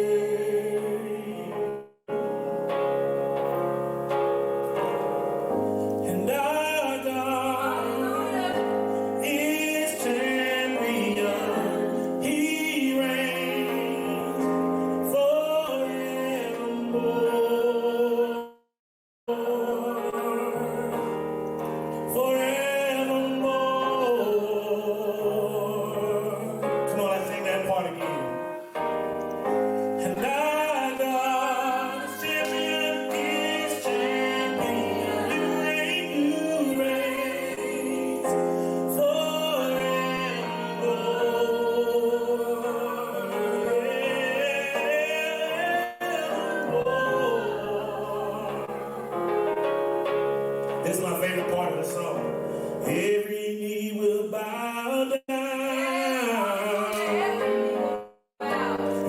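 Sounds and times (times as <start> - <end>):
sustained keyboard chords: 0.0 - 15.2, 19.4 - 53.1
singers holding a long note: 6.0 - 18.5, 19.3 - 28.5, 30.0 - 49.7, 55.3 - 59.0.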